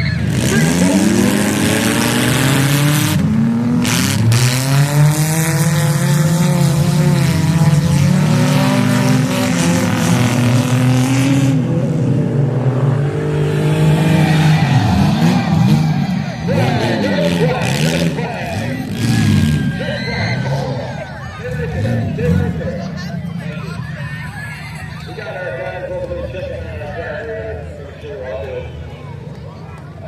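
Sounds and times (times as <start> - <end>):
car engines revving: 0.0 - 30.0
tire noise: 0.0 - 30.0.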